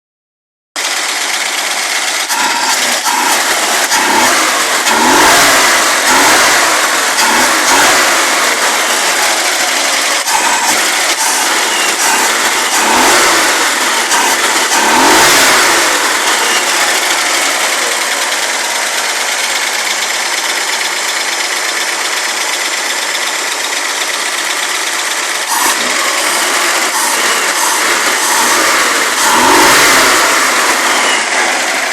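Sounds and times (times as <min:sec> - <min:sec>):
car engine revving and idling: 0:00.8 - 0:31.9.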